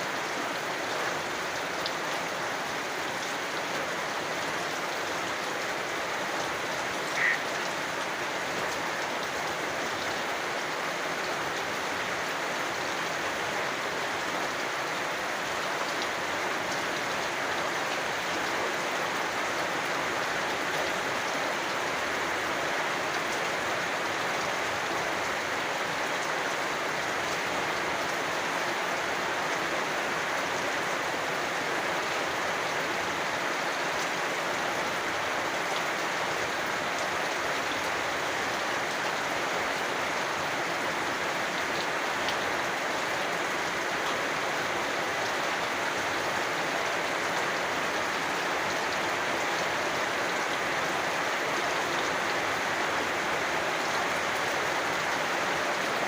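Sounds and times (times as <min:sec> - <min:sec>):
steady rain falling: 0:00.0 - 0:56.0
frog calling: 0:07.0 - 0:07.8.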